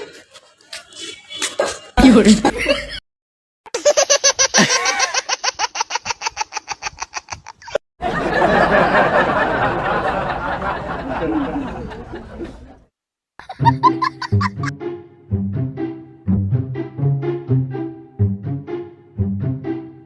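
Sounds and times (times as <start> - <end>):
several voices laughing: 2.3 - 3.0, 4.6 - 5.4, 7.5 - 12.8, 13.4 - 14.7
rapid ha-ha laughter: 3.8 - 12.8, 13.4 - 14.7.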